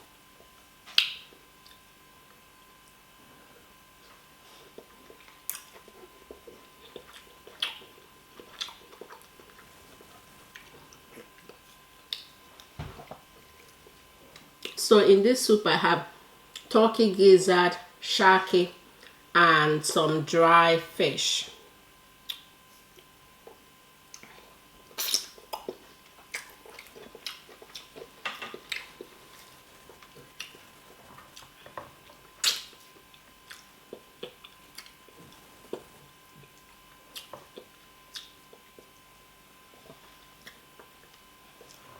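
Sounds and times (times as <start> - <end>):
wet chewing and mouth sounds: 0.4 - 2.5, 3.6 - 14.8, 22.2 - 41.9
small mouth clicks: 0.9 - 1.8, 6.9 - 7.9, 25.0 - 25.7, 32.4 - 32.8, 37.1 - 38.6.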